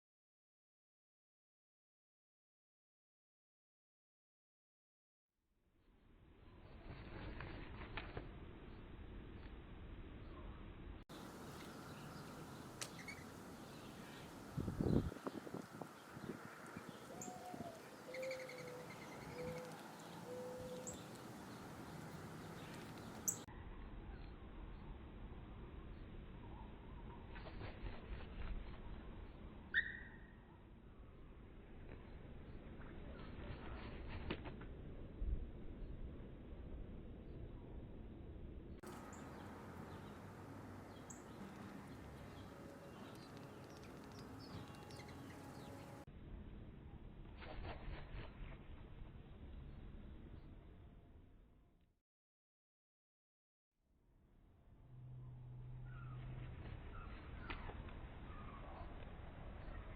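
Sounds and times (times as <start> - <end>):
small birds chirping: 11.1 - 23.5, 38.9 - 46.0
high bird chirps: 11.6 - 14.2, 17.0 - 21.1, 29.7 - 30.3
dove cooing: 17.1 - 21.0
low rumble: 54.4 - 57.5.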